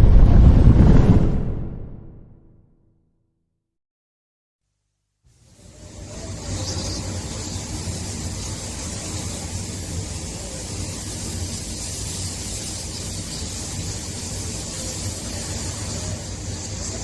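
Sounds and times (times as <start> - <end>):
wind whistling: 0.0 - 2.5
strong wind rumbling: 0.0 - 2.6.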